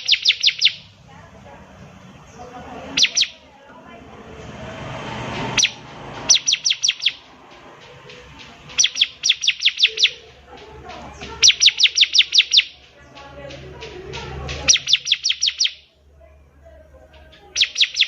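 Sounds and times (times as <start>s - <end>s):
bird singing sharp falling notes: 0.0s - 0.9s, 3.0s - 3.4s, 5.5s - 10.2s, 11.4s - 12.8s, 14.6s - 15.8s, 17.5s - 18.0s.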